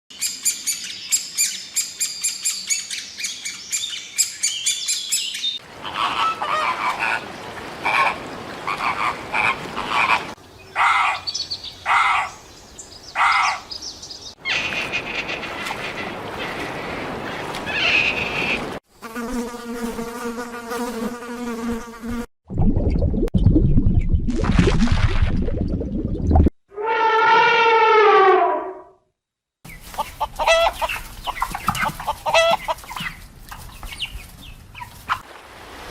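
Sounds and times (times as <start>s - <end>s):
drawn-out tonal animal call: 5.7s - 11.3s, 26.8s - 28.8s.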